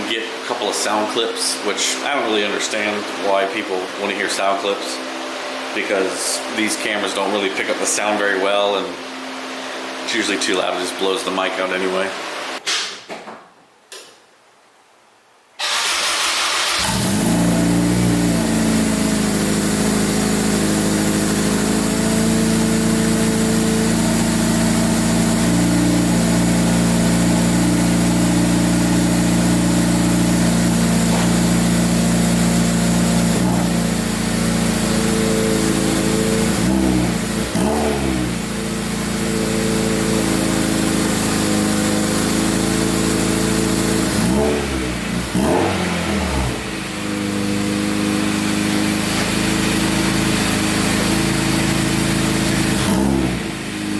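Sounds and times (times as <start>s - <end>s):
car engine starting and idling: 15.6s - 53.9s.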